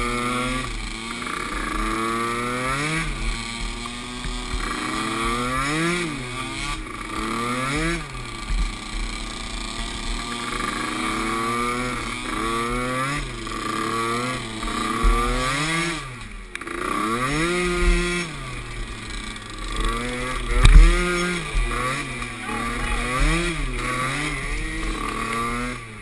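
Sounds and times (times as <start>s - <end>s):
small atv engines revving: 0.0s - 26.0s
sharp thump: 20.5s - 21.7s.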